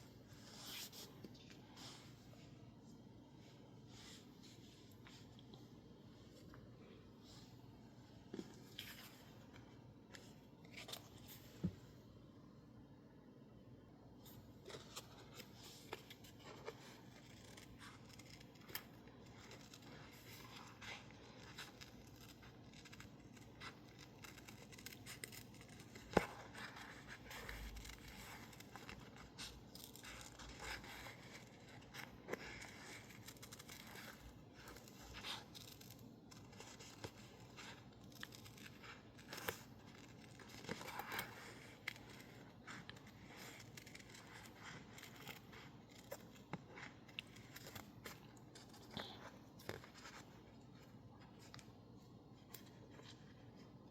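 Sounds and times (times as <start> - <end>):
paper rustling: 14.3 - 51.8
scissors snipping paper: 14.7 - 50.3.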